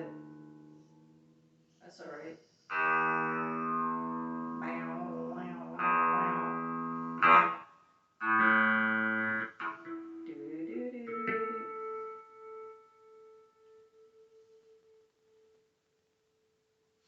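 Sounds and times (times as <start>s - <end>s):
electric guitar strummed chords: 2.7s - 7.6s, 8.2s - 14.2s.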